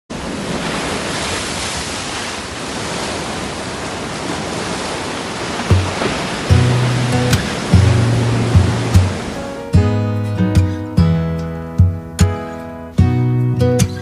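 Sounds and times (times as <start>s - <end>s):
sea surf rushing: 0.1s - 11.2s
music with low plucked notes: 5.8s - 14.0s.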